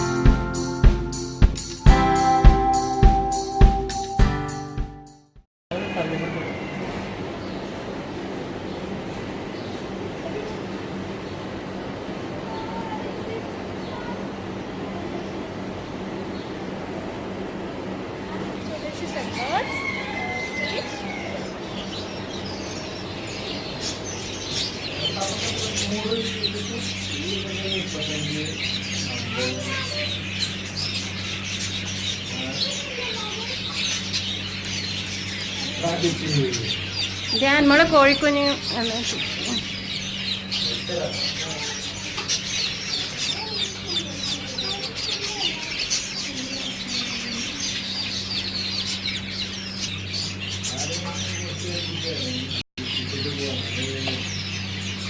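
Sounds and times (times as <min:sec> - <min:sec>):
caged birds chirping: 0:05.7 - 0:55.0
hens clucking: 0:18.0 - 0:21.8
chicks peeping: 0:18.0 - 0:55.0.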